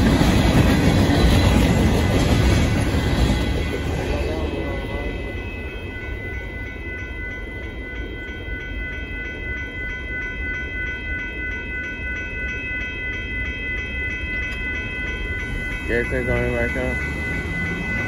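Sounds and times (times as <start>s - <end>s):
crossing warning bell ringing: 0.0s - 18.0s
freight cars rolling past: 15.4s - 18.0s.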